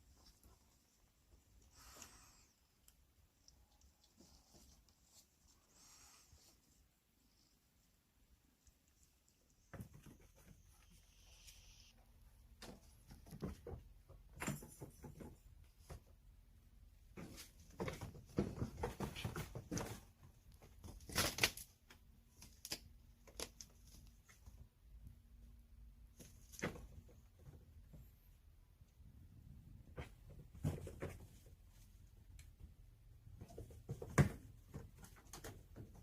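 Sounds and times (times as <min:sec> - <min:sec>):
kittens scuffling: 0:00.0 - 0:36.0.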